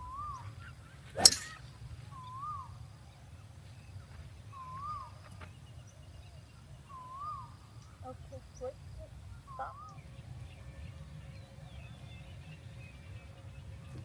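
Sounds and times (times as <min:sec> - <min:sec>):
golf club striking ball: 0:01.2 - 0:01.6.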